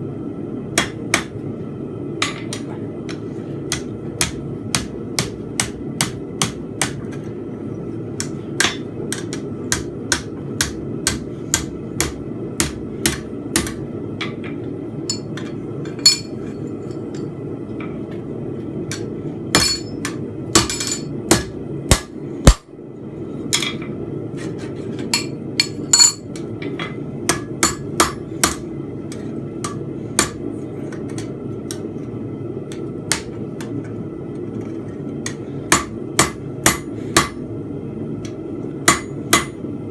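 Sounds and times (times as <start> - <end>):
hammer striking steel on anvil: 2.2 - 7.0, 8.2 - 14.5, 15.1 - 17.3, 18.9 - 22.7, 25.1 - 31.8, 35.2 - 37.4, 38.2 - 39.7.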